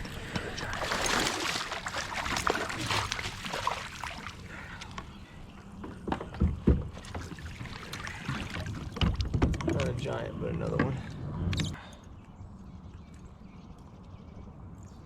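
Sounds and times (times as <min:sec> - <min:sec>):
water splashing against kayak: 0:00.0 - 0:10.2
heavy knocks on hull: 0:05.8 - 0:07.5, 0:08.3 - 0:10.0.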